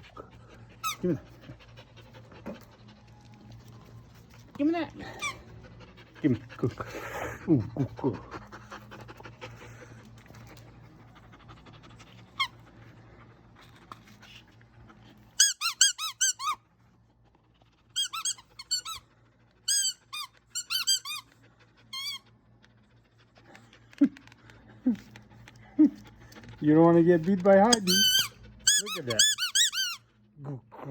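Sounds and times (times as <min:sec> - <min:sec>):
squeaky toy ball squeaking: 0:15.4 - 0:16.6, 0:18.0 - 0:19.0, 0:19.7 - 0:21.3, 0:27.6 - 0:30.0.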